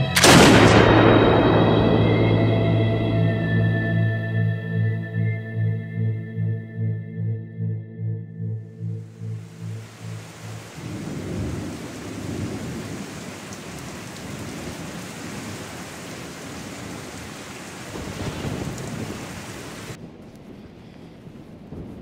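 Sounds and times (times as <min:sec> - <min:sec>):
rolling thunder: 0:00.2 - 0:04.5, 0:09.4 - 0:22.0
heavy rain: 0:09.0 - 0:22.0.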